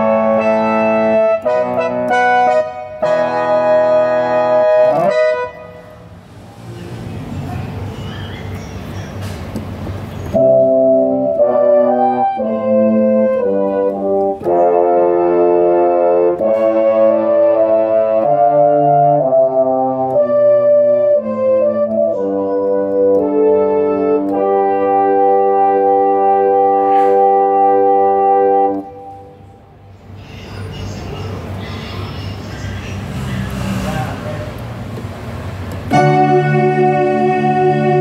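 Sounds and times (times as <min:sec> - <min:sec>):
keyboard brass chords: 0:00.0 - 0:06.4, 0:09.7 - 0:30.0, 0:35.3 - 0:38.0.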